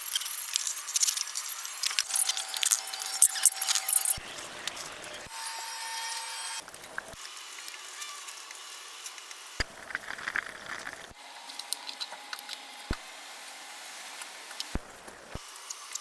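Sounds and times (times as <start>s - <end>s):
small clicks and ticks: 0.0s - 4.8s.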